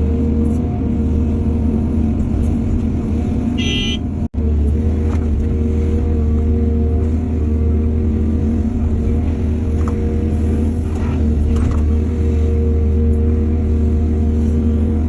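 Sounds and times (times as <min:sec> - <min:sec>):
heavy diesel machinery droning: 0:00.0 - 0:15.0
short high-pitched toot: 0:03.6 - 0:04.0.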